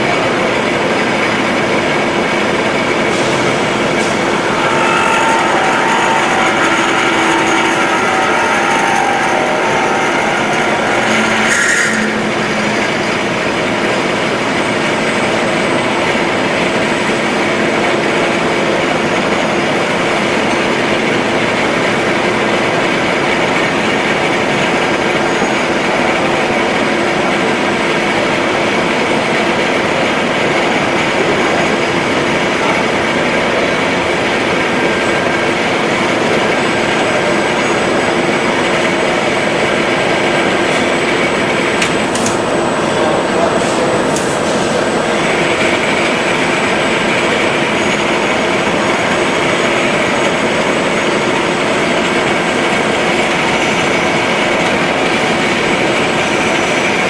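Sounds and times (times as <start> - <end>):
milling machine running: 0.0 - 57.0
sharp high-pitched sound: 3.2 - 15.3.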